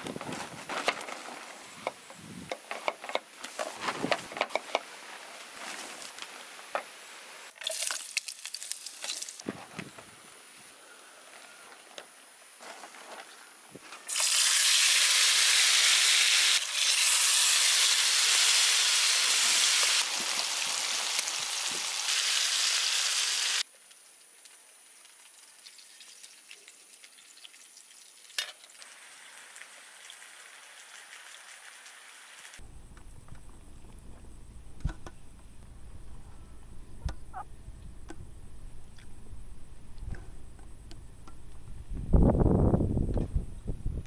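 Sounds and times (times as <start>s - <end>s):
oil sizzling in a pan: 14.1s - 23.7s, 24.7s - 32.6s.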